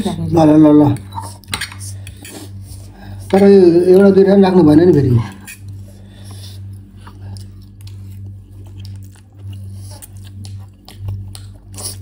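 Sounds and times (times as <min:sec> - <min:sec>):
steady low hum: 0:00.0 - 0:12.0
chewing noodles: 0:05.3 - 0:12.0.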